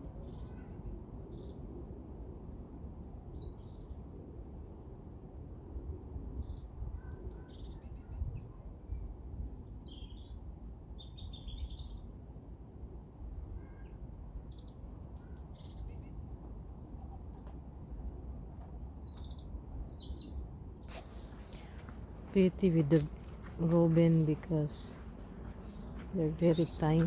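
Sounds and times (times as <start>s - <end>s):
songbirds chirping: 6.4s - 12.9s, 13.6s - 27.0s.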